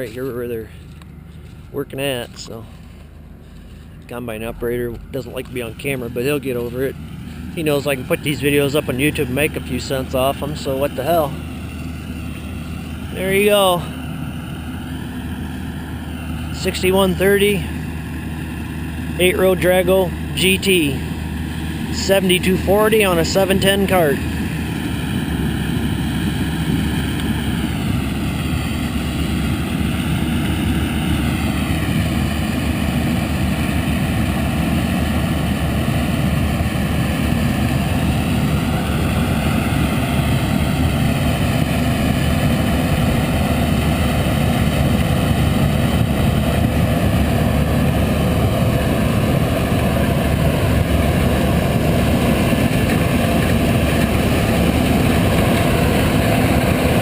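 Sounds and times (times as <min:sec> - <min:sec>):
combine harvester drone: 0:00.0 - 0:57.0
tractor pulling grain cart: 0:00.0 - 0:57.0.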